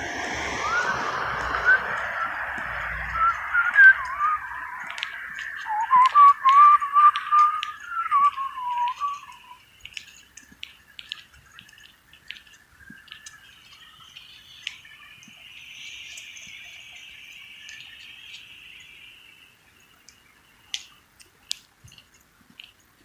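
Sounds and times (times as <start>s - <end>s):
sharp clicks: 1.4s - 13.4s.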